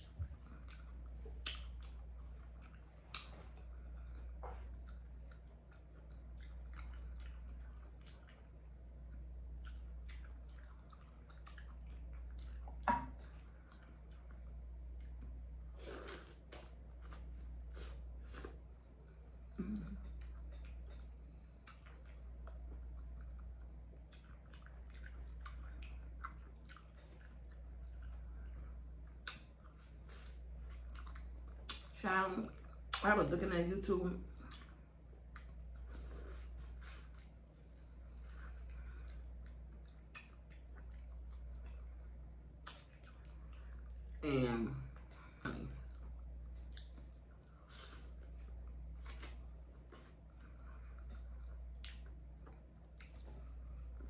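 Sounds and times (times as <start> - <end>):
person chewing: 0.0 - 32.0, 34.3 - 44.2, 45.0 - 54.0
low steady hum: 0.0 - 54.0
wet mouth clicks: 39.4 - 41.1.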